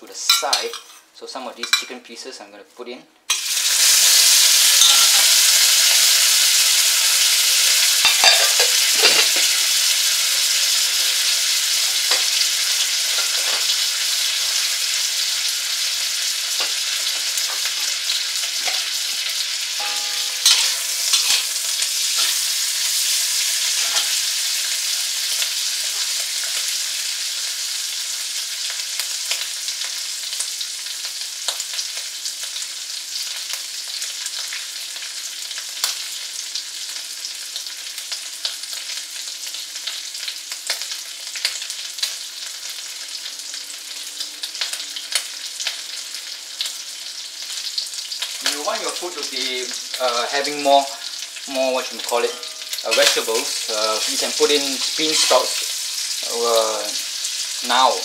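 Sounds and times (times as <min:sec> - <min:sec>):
chicken sizzling in oil: 0:03.3 - 0:58.0
metal spatula scraping wok: 0:08.0 - 0:09.5, 0:19.8 - 0:22.4, 0:23.6 - 0:24.4, 0:52.2 - 0:55.6.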